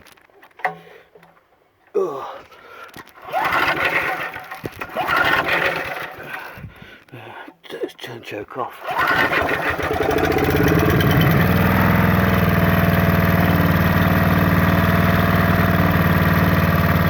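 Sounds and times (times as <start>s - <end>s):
generator engine running: 3.2s - 6.4s, 8.8s - 17.0s.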